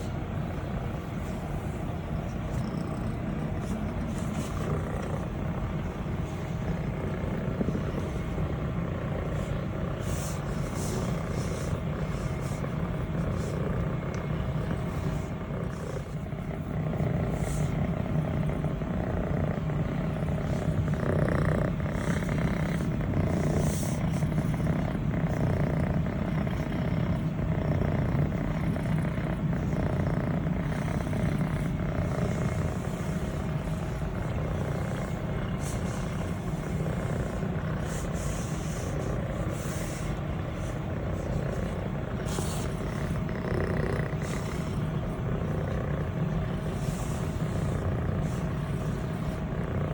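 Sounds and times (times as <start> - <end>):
kitten purring: 0.0 - 49.9
hand stroking fur rustles: 0.9 - 8.4, 9.0 - 16.1, 20.1 - 25.4, 31.6 - 49.4.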